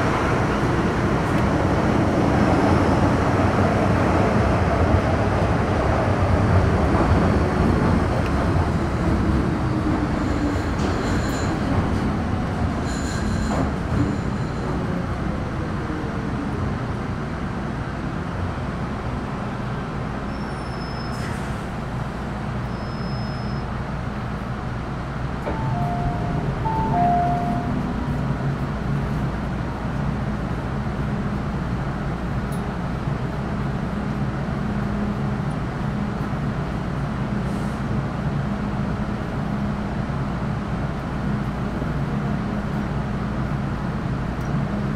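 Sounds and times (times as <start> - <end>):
train rumble: 0.0 - 22.8, 23.6 - 44.9
short beeps: 22.8 - 23.6, 25.5 - 27.8
train braking whine: 25.5 - 28.0.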